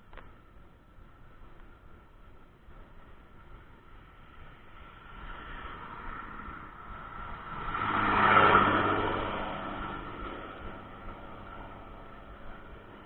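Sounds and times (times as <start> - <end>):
vehicle passing by: 4.2 - 13.0.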